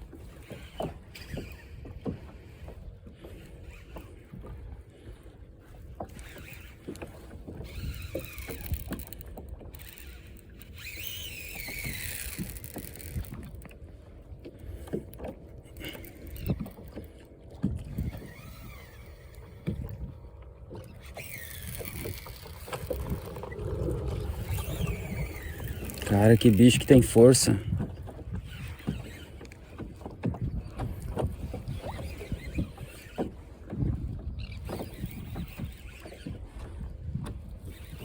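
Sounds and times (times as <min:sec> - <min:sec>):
wind and water rumble: 0:00.0 - 0:38.0
fishing tackle knocks and clicks: 0:06.0 - 0:13.8, 0:14.8 - 0:18.7, 0:20.7 - 0:33.3.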